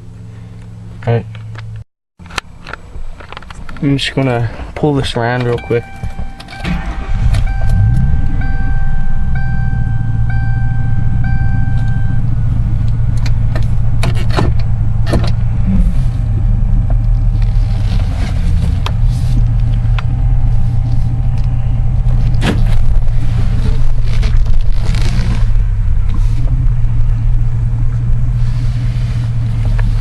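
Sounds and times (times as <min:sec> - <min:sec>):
car engine low rumble: 0:00.0 - 0:30.0
car warning chime beeping: 0:05.4 - 0:12.5.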